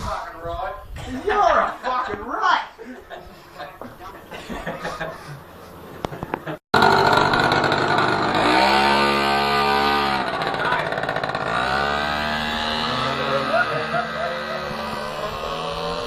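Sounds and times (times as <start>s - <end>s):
minibike engine revving: 6.8s - 16.0s
voices: 9.0s - 11.4s, 12.5s - 16.0s.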